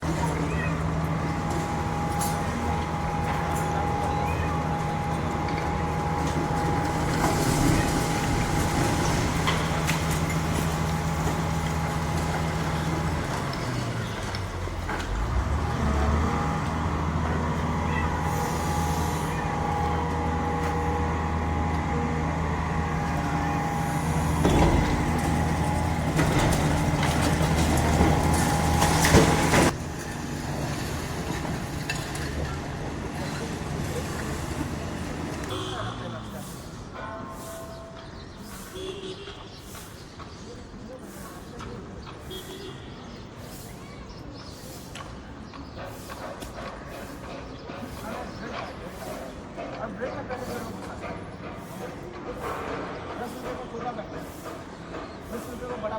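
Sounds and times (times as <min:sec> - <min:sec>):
diesel engine humming: 0:00.0 - 0:39.4.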